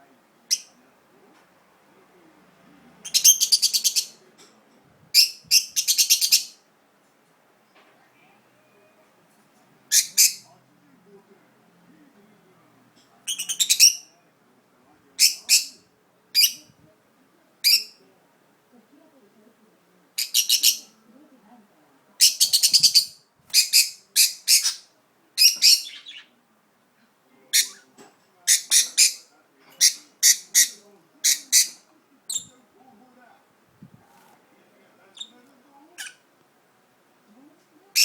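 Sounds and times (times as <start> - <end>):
budgerigar chirping: 3.0 - 4.2, 20.2 - 20.9, 22.2 - 26.3.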